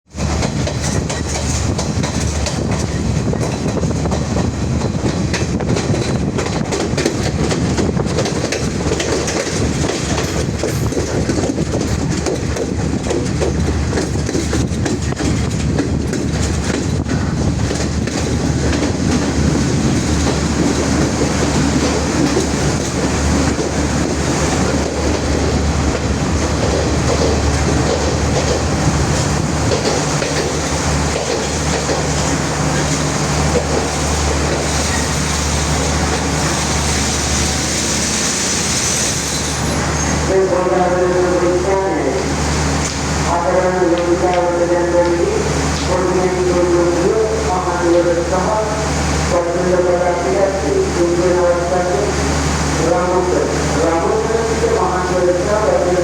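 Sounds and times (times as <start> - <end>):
train rumbling along track: 0.0 - 56.0
wheels clicking over rails: 0.1 - 36.4.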